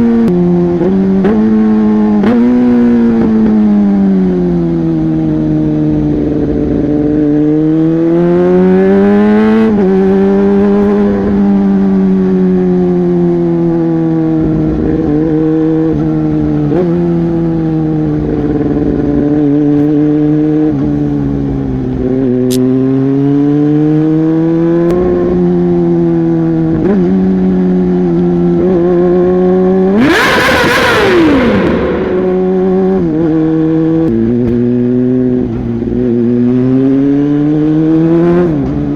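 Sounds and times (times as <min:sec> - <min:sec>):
motorcycle engine revving: 0:00.0 - 0:38.9
rush of noise with falling tone: 0:30.4 - 0:33.3.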